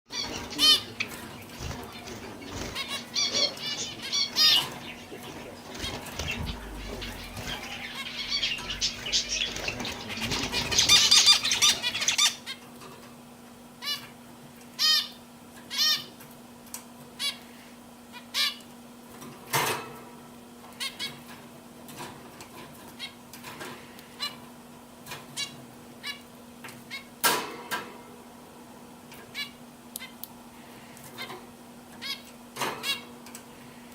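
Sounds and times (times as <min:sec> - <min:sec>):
steady low hum: 0:00.1 - 0:12.5
canaries chirping: 0:00.1 - 0:12.6.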